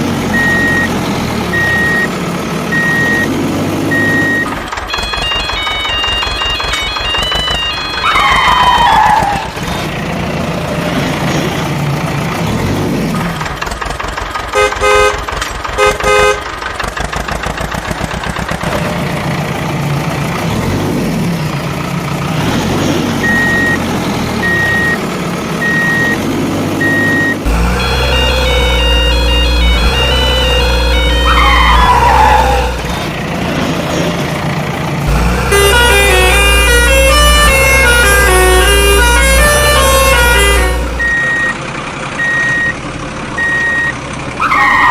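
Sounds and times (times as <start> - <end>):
horn honks: 14.5 - 16.6, 27.7 - 32.8, 35.1 - 41.5
short beeps: 41.0 - 41.6, 42.2 - 42.8, 43.4 - 44.0.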